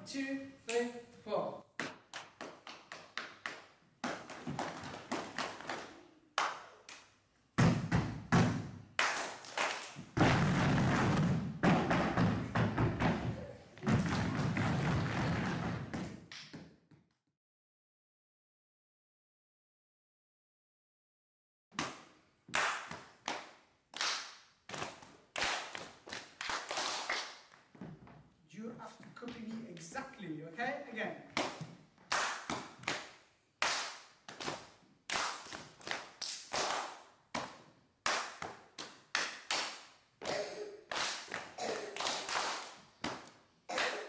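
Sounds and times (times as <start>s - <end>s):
hands clapping a rhythm: 1.8s - 7.2s, 7.9s - 10.2s, 13.9s - 16.8s, 21.8s - 27.7s, 31.3s - 44.0s
body-percussion slaps: 1.8s - 16.8s, 21.8s - 27.6s, 31.3s - 44.0s.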